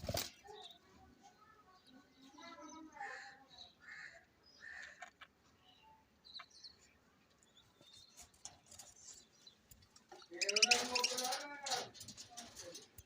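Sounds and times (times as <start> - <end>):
budgerigars chirping: 10.2 - 11.4.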